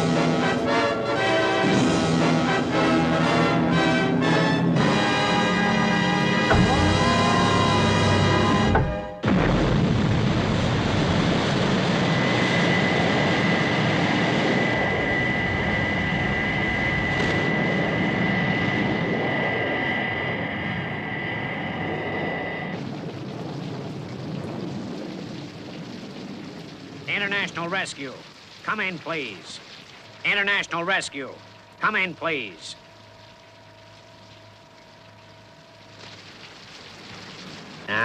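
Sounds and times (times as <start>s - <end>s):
orchestral score music: 0.0s - 9.2s
high even whine: 0.0s - 23.0s
jet engine roar: 0.0s - 38.0s.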